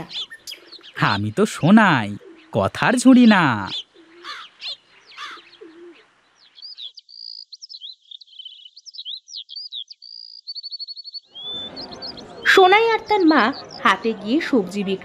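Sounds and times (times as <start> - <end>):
birds chirping and twittering: 0.0 - 15.0.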